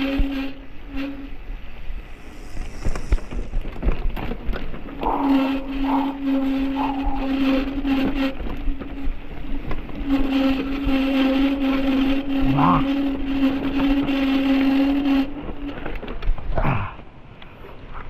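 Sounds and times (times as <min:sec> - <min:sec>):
rushing hiss: 0:00.0 - 0:08.1.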